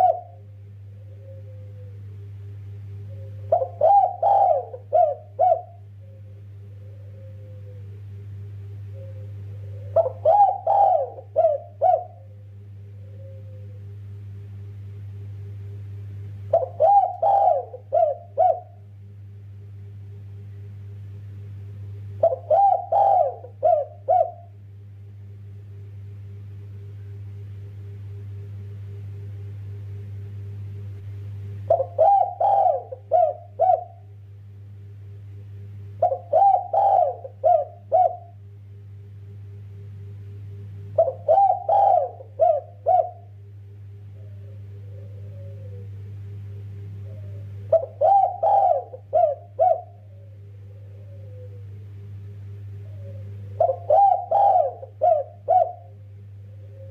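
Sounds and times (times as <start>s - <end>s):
dove cooing: 0.0s - 14.0s, 16.5s - 19.1s, 22.1s - 24.6s, 31.6s - 34.2s, 35.9s - 38.4s, 40.8s - 56.9s
steady low hum: 0.0s - 56.9s.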